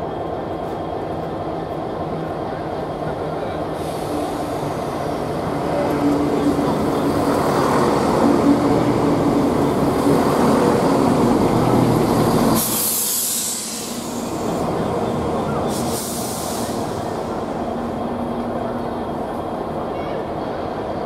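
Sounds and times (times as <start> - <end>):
train rumbling: 0.0 - 21.0
burst of hiss: 12.5 - 14.6.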